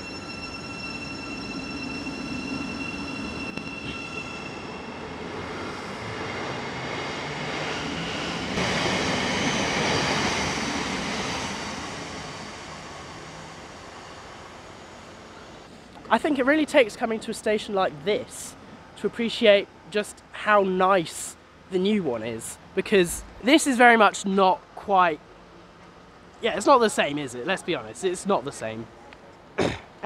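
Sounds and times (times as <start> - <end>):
electric train whine: 0.0 - 16.0
train carriages running past: 0.0 - 19.4.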